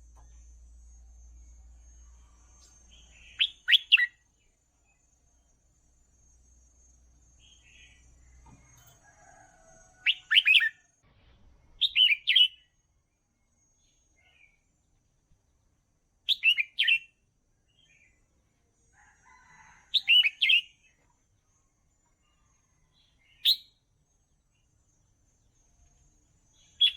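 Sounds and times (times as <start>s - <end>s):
bulbul singing: 2.6s - 4.2s, 11.8s - 12.8s.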